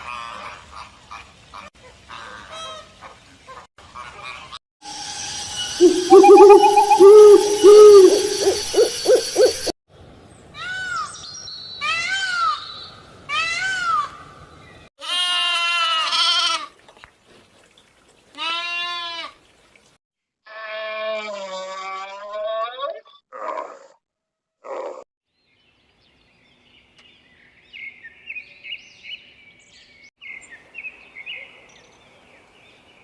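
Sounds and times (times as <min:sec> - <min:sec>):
long wavering calls: 0:05.7 - 0:09.7
loud pitched animal calls: 0:05.8 - 0:09.7
short rising and falling calls: 0:05.8 - 0:09.7.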